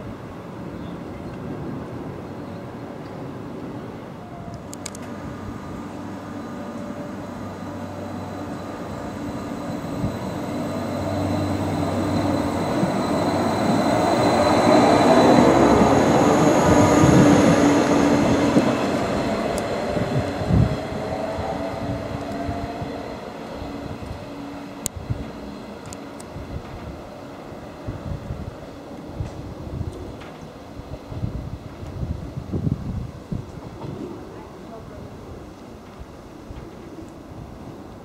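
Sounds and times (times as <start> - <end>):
train wheel noise: 4.4 - 38.0
electric train motor whine: 4.7 - 28.5
train clunk: 30.1 - 30.6, 33.5 - 34.5.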